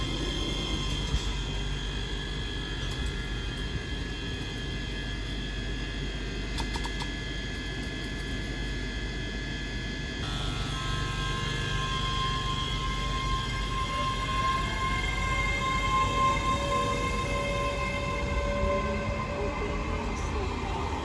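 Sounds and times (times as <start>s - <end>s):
electrical hum: 0.0s - 21.0s
high whining tones: 10.2s - 21.0s.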